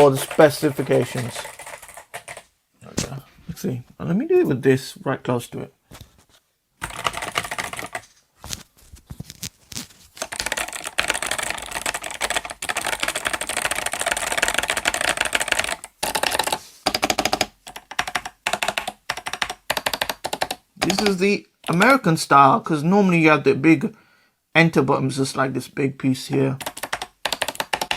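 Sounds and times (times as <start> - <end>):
clicky keyboard typing: 0.0 - 3.1, 6.8 - 8.1, 10.2 - 21.9, 26.6 - 27.9.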